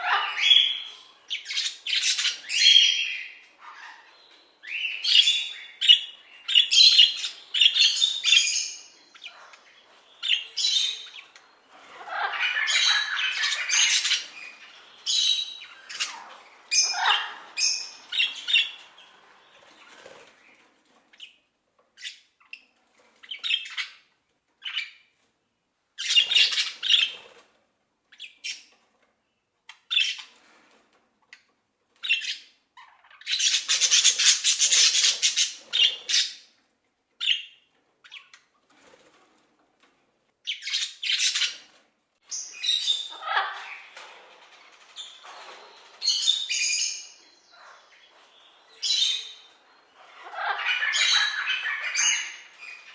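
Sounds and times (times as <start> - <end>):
parrots squawking: 0.0 - 19.2, 26.0 - 27.2, 32.0 - 36.5, 40.5 - 52.9.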